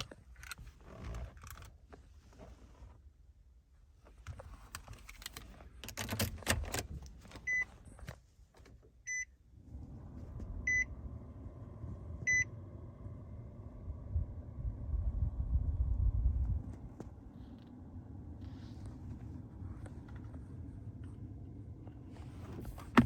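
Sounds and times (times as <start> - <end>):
car engine starting and idling: 0.0 - 23.0
keys rattling and clicking: 5.0 - 7.0.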